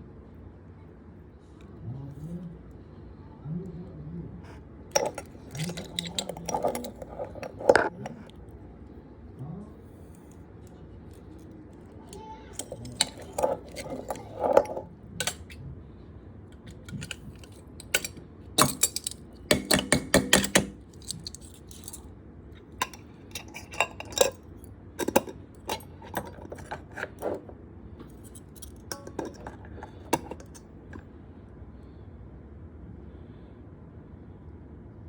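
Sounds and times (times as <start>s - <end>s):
dishes and utensils clinking: 4.9s - 8.3s, 12.1s - 15.6s, 16.7s - 22.0s, 22.8s - 24.4s, 25.0s - 30.6s.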